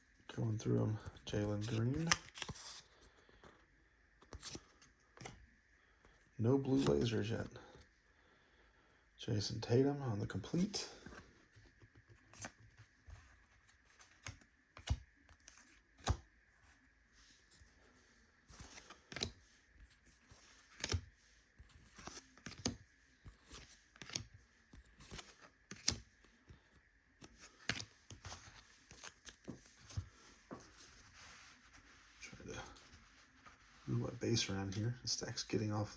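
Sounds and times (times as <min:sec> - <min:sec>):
trading cards tapping and sliding: 0:06.7 - 0:07.1, 0:18.5 - 0:19.4, 0:20.0 - 0:21.1, 0:21.7 - 0:26.1, 0:27.2 - 0:34.8.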